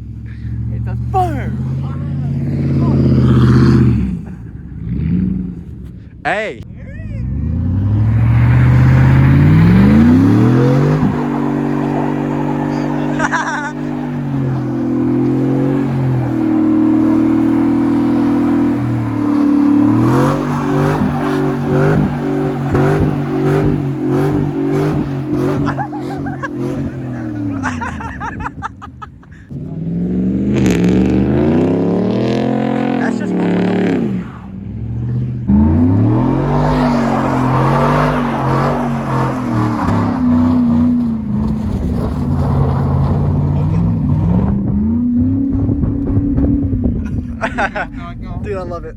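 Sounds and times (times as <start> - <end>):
vehicle engine at high revs: 0.0 - 48.7.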